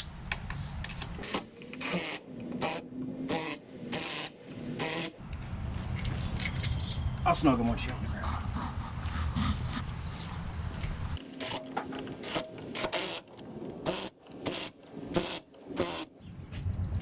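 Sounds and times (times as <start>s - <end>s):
ratchet wrench clicking: 1.2s - 5.2s, 11.2s - 16.1s.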